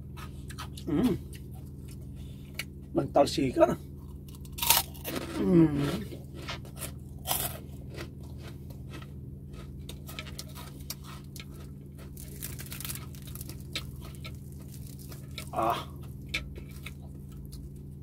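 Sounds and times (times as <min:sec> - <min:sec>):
chewing crispy pork skin: 0:00.0 - 0:02.9, 0:03.9 - 0:18.0
crackling tear of pork: 0:09.9 - 0:17.9.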